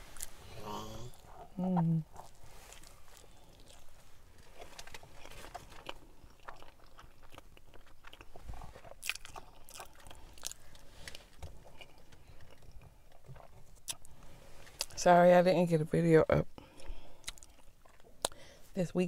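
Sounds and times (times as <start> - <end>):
person chewing with wet clicks: 2.1 - 3.9, 4.6 - 14.1, 14.8 - 15.0, 16.6 - 18.4.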